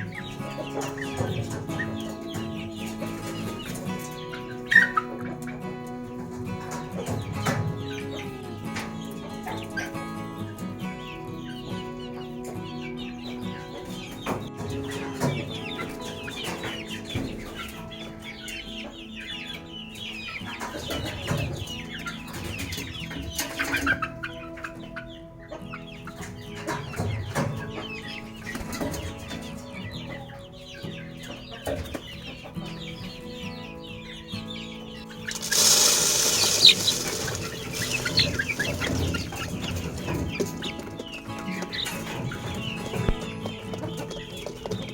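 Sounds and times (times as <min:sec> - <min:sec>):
background music: 0:00.0 - 0:44.9
chickens clucking: 0:00.0 - 0:44.9.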